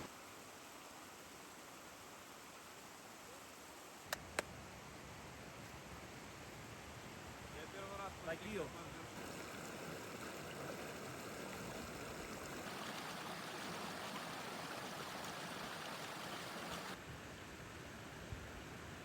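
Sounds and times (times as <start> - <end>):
waterfall rushing: 9.2 - 17.0.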